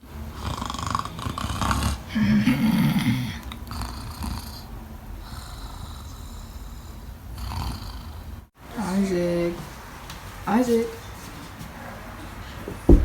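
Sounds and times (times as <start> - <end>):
person snoring: 0.3 - 8.3.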